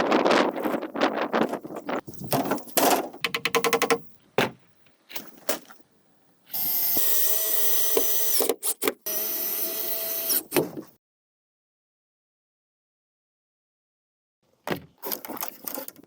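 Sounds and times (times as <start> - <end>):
knocks: 2.3 - 4.6
power drill whining: 9.1 - 10.5.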